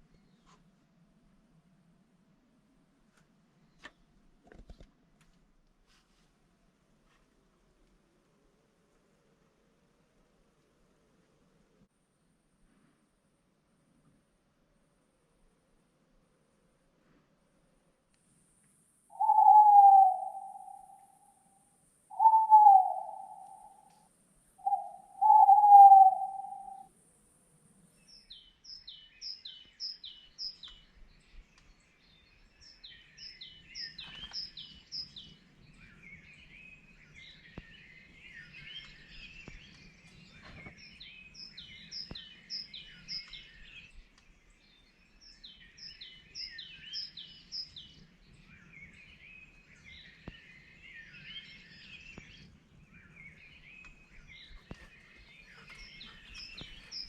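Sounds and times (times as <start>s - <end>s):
songbirds singing: 19.1s - 21.4s, 22.1s - 26.9s, 27.9s - 57.0s
low hooting call: 19.1s - 24.0s, 24.6s - 26.9s.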